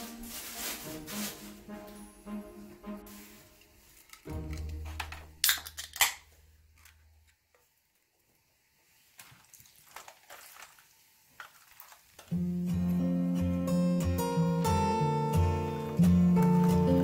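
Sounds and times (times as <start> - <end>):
drinks can opening cracks: 4.0 - 7.0.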